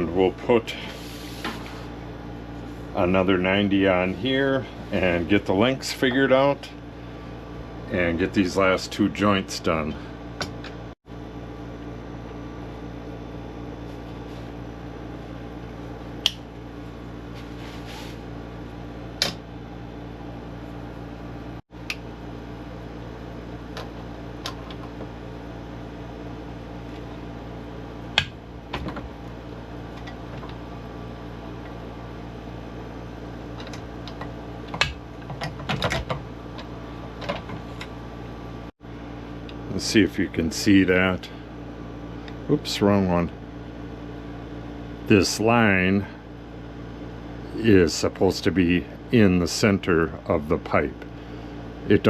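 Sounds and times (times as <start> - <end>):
steady background hum: 0.0 - 52.0.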